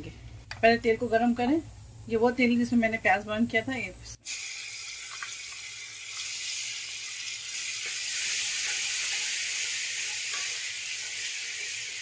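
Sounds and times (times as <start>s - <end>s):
paste sizzling in hot oil: 4.2s - 12.0s.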